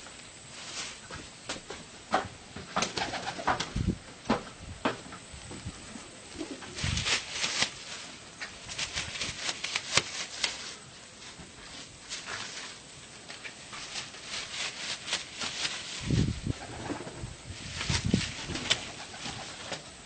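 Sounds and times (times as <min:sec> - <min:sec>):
pigeons scuffling and rustling: 0:00.0 - 0:20.0
pigeon cooing: 0:06.0 - 0:06.9.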